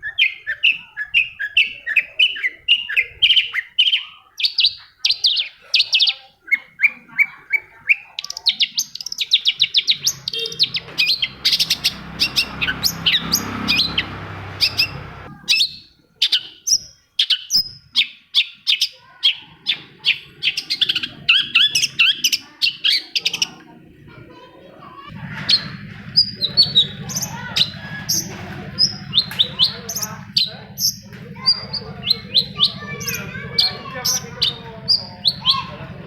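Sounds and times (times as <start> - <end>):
bird chirping and whistling: 0.0 - 4.1, 8.2 - 18.6, 25.4 - 35.8.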